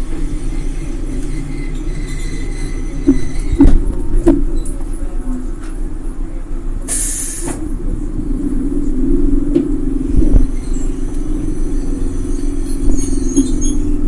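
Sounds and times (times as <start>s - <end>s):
train rumbling: 0.0s - 14.0s
short hiss: 6.9s - 7.6s.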